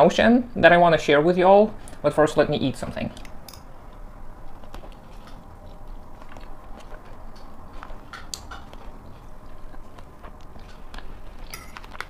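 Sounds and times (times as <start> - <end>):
person chewing food: 3.2 - 12.0.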